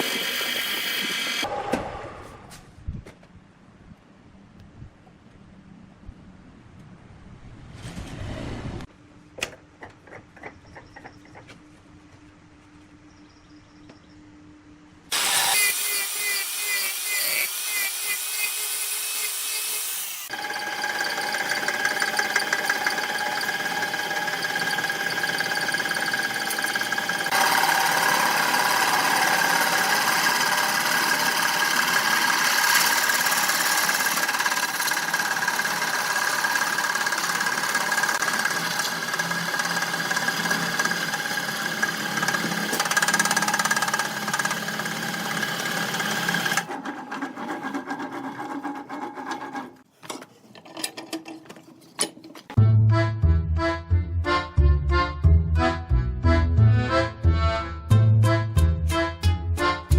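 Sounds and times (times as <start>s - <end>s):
woodworking machine whine: 0.0s - 1.5s, 15.1s - 49.8s
faint motor hum: 8.9s - 15.1s.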